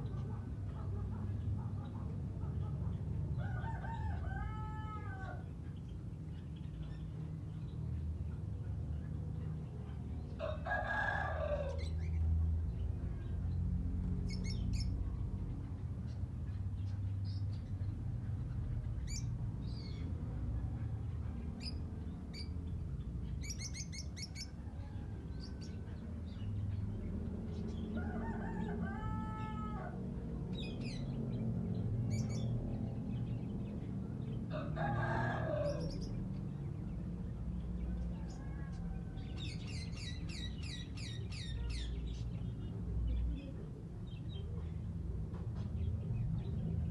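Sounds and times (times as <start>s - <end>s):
low background rumble: 0.0s - 46.9s
small birds chirping and trilling: 0.0s - 46.9s
rooster crowing: 3.4s - 5.4s, 10.4s - 11.9s, 27.9s - 30.0s, 34.5s - 36.0s, 38.2s - 39.6s.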